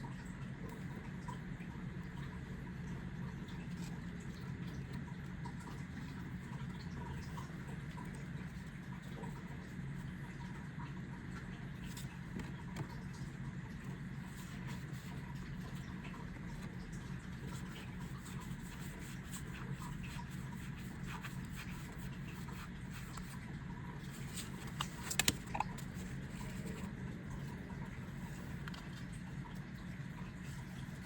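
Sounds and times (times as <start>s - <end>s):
steady low hum: 0.0s - 31.0s
cards sliding against each other: 24.1s - 26.9s.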